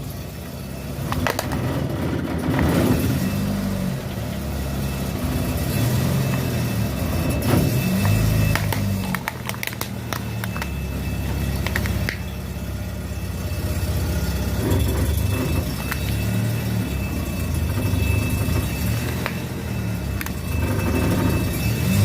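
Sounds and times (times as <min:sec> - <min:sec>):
engine running at low revs: 0:00.0 - 0:22.0
objects cracking under crushing: 0:07.9 - 0:12.2.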